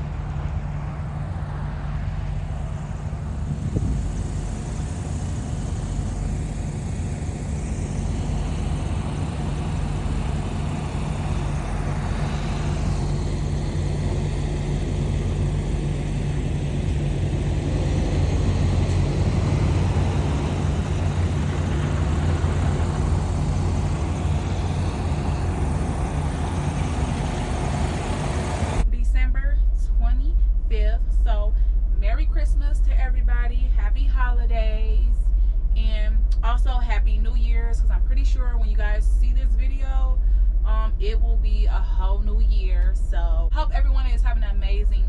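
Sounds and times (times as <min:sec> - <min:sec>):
road noise: 0:00.0 - 0:28.9
truck diesel engine drone: 0:00.0 - 0:45.0.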